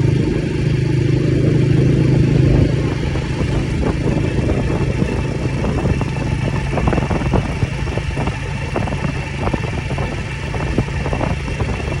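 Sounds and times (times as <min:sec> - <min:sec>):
road noise: 0:00.0 - 0:12.0
vehicle engine running: 0:00.0 - 0:12.0.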